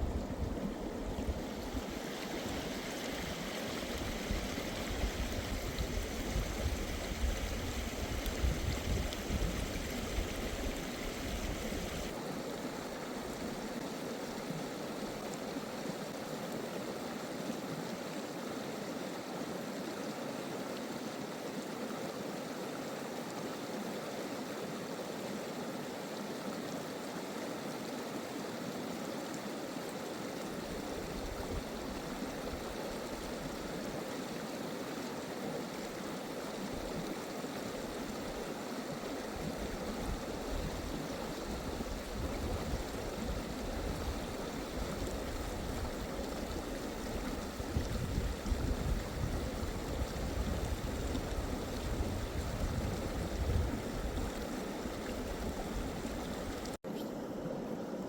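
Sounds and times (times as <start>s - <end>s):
wind rumble on microphone: 0.0s - 12.1s, 30.7s - 33.3s, 39.3s - 56.8s
stream rushing and gurgling: 0.0s - 58.0s.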